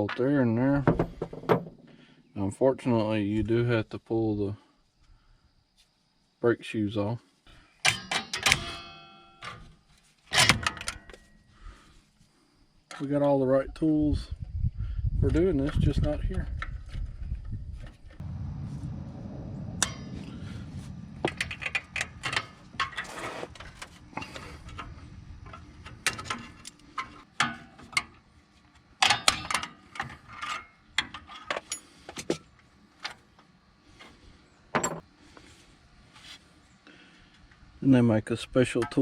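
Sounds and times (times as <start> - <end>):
low rumble: 17.6 - 22.8
metal tools clinking on steel: 29.0 - 32.1, 34.8 - 35.1.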